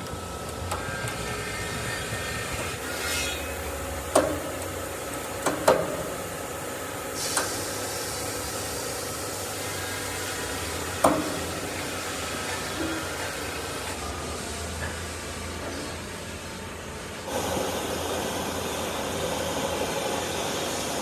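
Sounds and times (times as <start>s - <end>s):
short hiss: 7.2s - 8.2s
machinery running: 17.1s - 21.0s.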